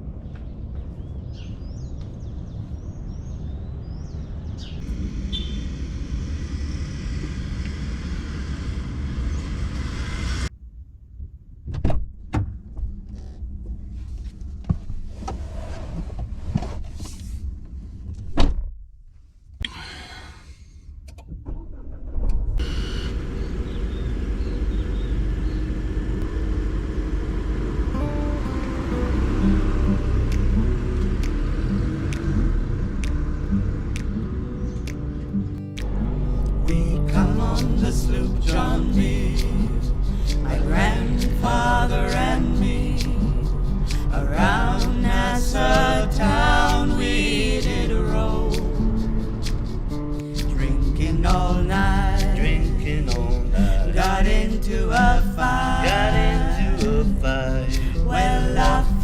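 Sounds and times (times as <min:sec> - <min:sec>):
birds chirping: 0:00.2 - 0:05.7, 0:22.6 - 0:26.2.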